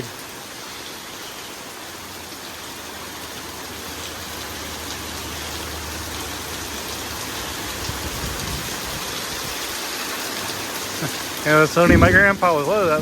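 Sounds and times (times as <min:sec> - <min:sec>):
heavy rain hissing: 0:00.0 - 0:13.0
low rumble: 0:11.8 - 0:13.0.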